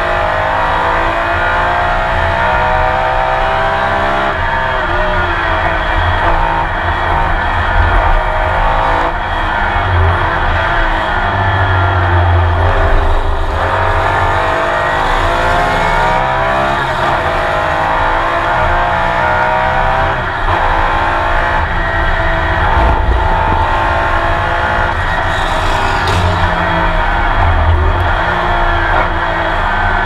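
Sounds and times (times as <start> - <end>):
race car engine revving: 0.0 - 30.0
faint tyre squeal: 21.8 - 30.0.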